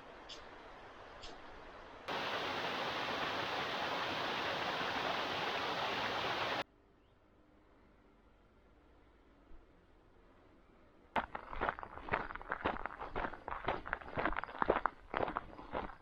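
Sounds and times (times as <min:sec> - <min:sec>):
faint hiss: 0:02.1 - 0:06.6
loud steady rushing noise: 0:02.1 - 0:06.6.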